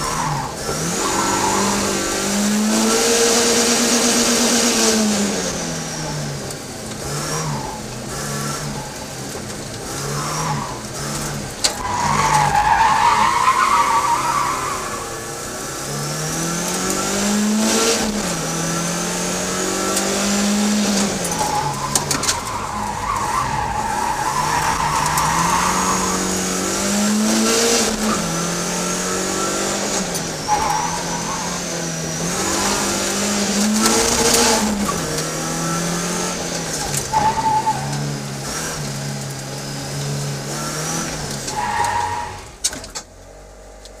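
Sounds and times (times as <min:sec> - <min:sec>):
car engine revving inside cabin: 0:00.0 - 0:12.4, 0:14.5 - 0:37.1
tyre squeals: 0:21.2 - 0:26.6, 0:30.3 - 0:33.0, 0:36.8 - 0:38.2.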